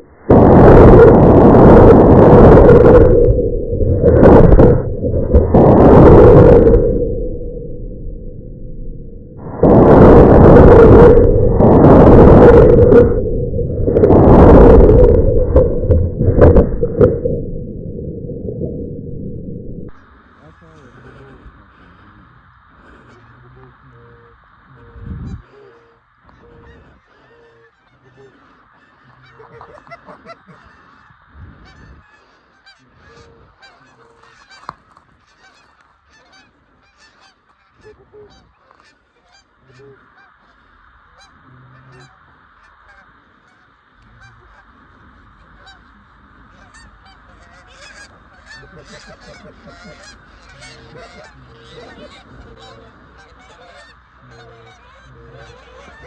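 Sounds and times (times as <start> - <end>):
geese honking and clucking: 19.9 - 56.0.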